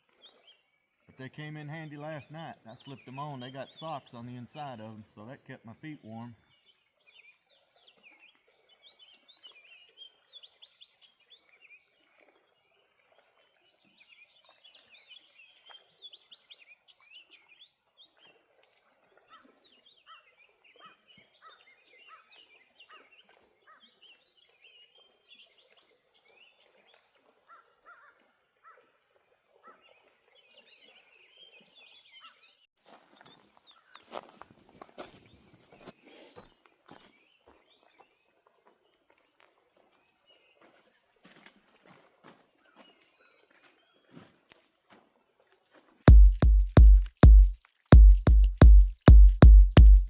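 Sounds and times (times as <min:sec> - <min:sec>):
songbirds chirping and trilling: 0:00.0 - 0:11.9, 0:29.6 - 0:34.2.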